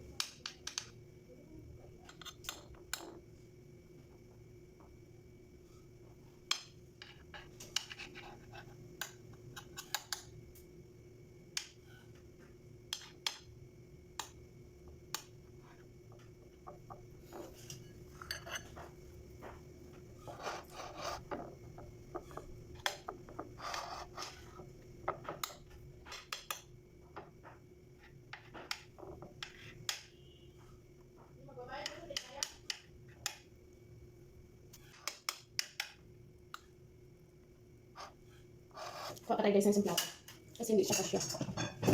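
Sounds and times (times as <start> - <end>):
faint steady hum: 0.0 - 41.9
utensils clinking against dishes: 40.8 - 41.9.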